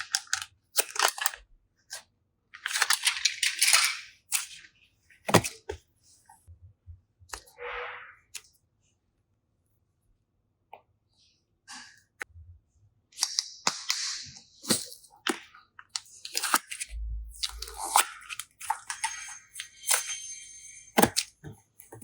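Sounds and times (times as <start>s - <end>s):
thin high squeak: 7.4s - 8.3s, 17.7s - 21.5s.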